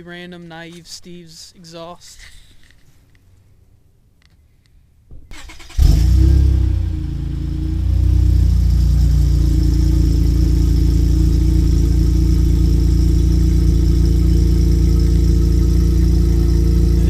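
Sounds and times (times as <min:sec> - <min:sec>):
car engine idling: 0:05.3 - 0:17.0.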